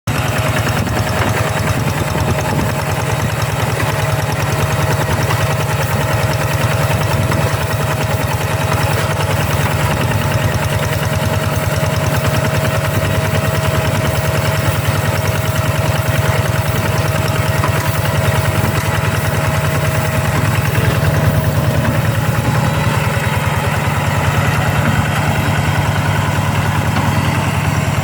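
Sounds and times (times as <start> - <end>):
tractor engine chugging: 0.0 - 28.0
steady whine: 16.3 - 28.0.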